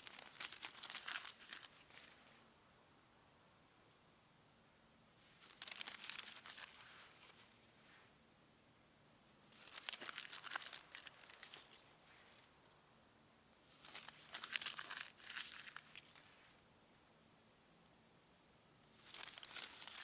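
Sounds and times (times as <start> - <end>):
crinkly rustling: 0.0 - 2.4, 5.1 - 8.1, 9.4 - 12.6, 13.6 - 16.6, 18.9 - 20.0.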